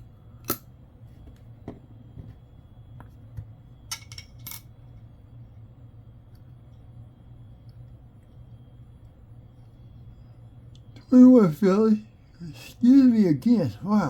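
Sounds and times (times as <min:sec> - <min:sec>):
low steady hum: 0:00.0 - 0:14.0
coins clinking on desk: 0:03.9 - 0:04.7.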